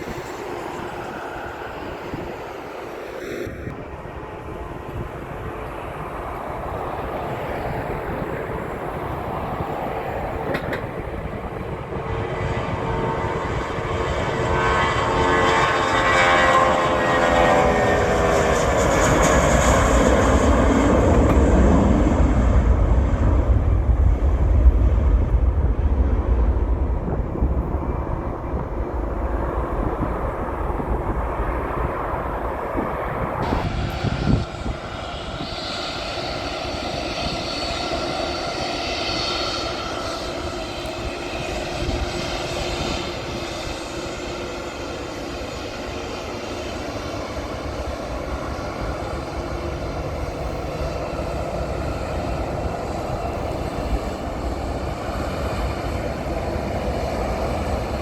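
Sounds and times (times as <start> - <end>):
jet engine noise: 0.0 - 58.0
deep rumble: 19.8 - 37.5.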